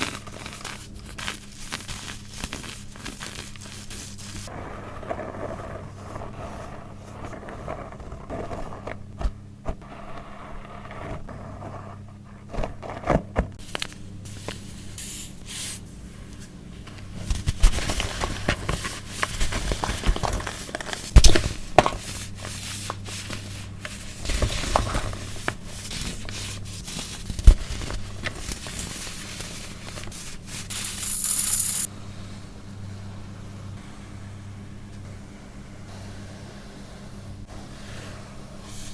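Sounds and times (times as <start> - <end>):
baking soda crunching and scraping: 0.0 - 9.0, 13.6 - 31.9
low electrical hum: 0.0 - 38.9
short hissing burst: 30.7 - 31.9.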